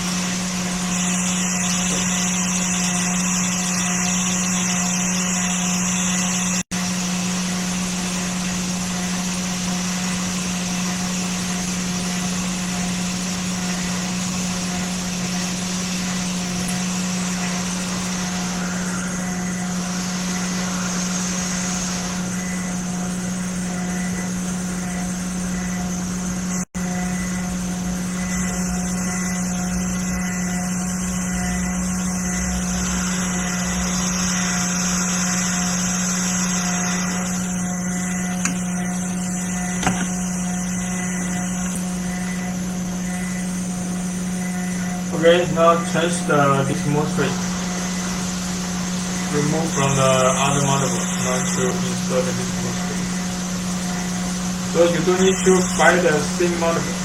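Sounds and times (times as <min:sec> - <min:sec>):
electrical hum: 0:00.0 - 0:57.0
hot air gun blowing: 0:33.0 - 0:42.0.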